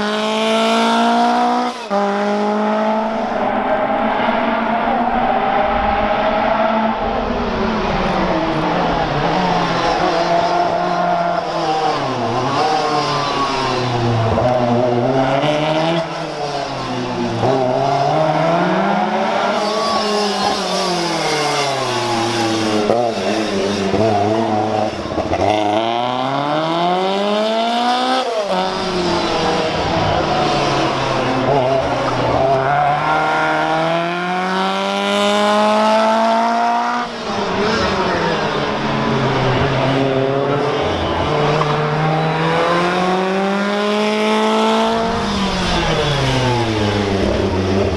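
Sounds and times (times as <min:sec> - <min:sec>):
rally car engine revving: 0:00.0 - 0:47.9
tyres squealing: 0:03.1 - 0:15.4.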